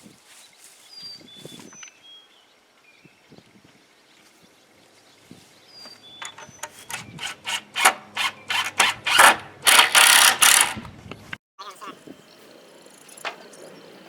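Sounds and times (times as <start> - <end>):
hand saw cutting wood: 6.2 - 10.9.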